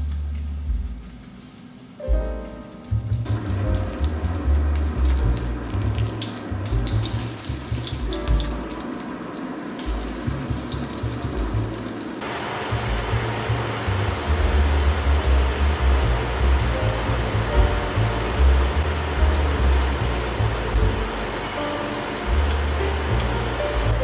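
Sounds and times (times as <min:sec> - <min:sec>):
soft background music: 0:00.0 - 0:24.0
tap water running into sink: 0:02.8 - 0:15.2.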